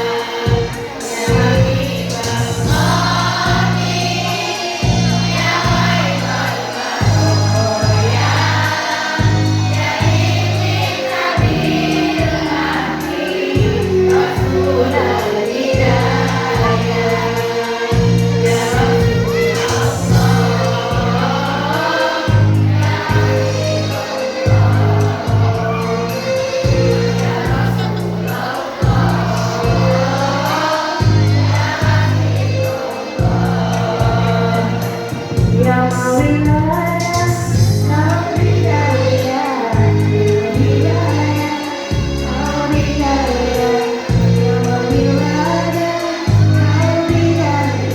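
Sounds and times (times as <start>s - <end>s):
choir singing: 0.0s - 47.9s
instrumental accompaniment: 0.0s - 47.9s
sustained bass notes: 1.3s - 13.0s, 13.6s - 32.6s, 33.2s - 39.1s
deep bass line: 18.0s - 21.7s.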